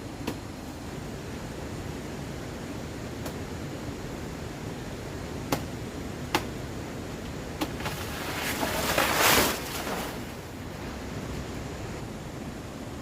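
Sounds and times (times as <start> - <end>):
wind-like hiss: 0.0 - 13.0
rustling crackling: 7.6 - 10.6.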